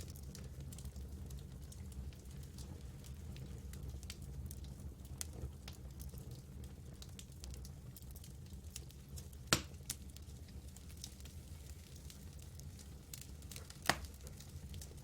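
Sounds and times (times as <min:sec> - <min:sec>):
campfire wood crackling: 0:00.0 - 0:15.0
fire pops: 0:07.0 - 0:15.0.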